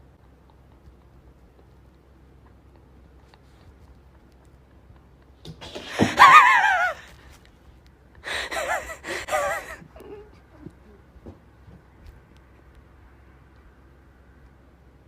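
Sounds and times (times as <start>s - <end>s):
high-pitched wavering vocal cries: 6.2s - 7.1s.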